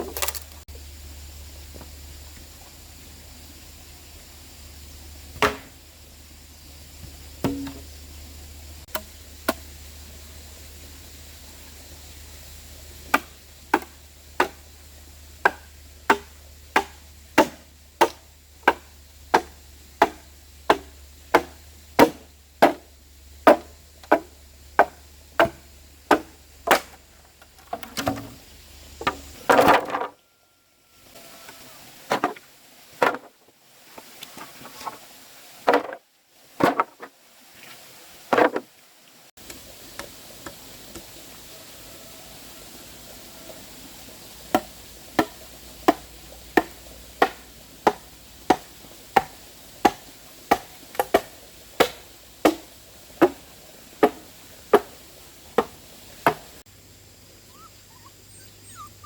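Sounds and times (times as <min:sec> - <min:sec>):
blade chopping wood: 0:00.0 - 0:00.6, 0:05.4 - 0:05.8, 0:07.4 - 0:07.9, 0:13.1 - 0:14.6, 0:15.4 - 0:22.9, 0:23.5 - 0:27.0, 0:44.5 - 0:53.4, 0:54.0 - 0:54.9, 0:55.6 - 0:56.5.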